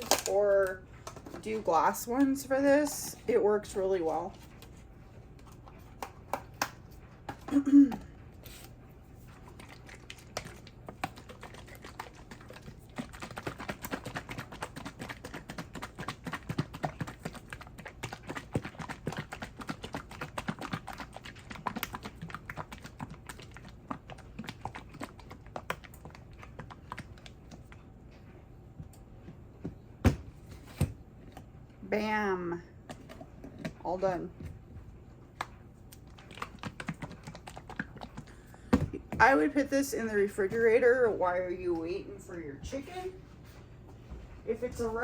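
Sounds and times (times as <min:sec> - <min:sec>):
utensil stirring thick dressing: 0:08.4 - 0:28.0, 0:35.2 - 0:38.5.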